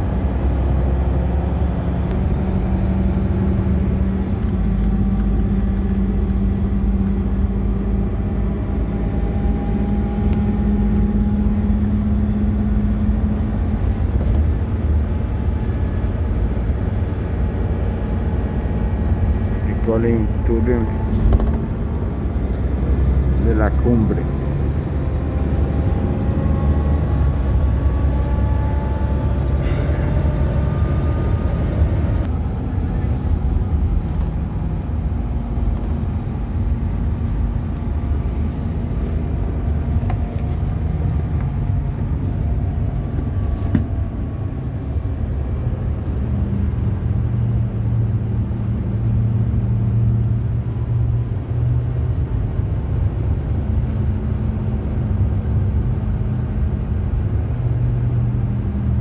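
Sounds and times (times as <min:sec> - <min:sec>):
bus engine running: 0:00.0 - 0:59.0
low hum: 0:00.0 - 0:59.0
road noise: 0:00.0 - 0:59.0.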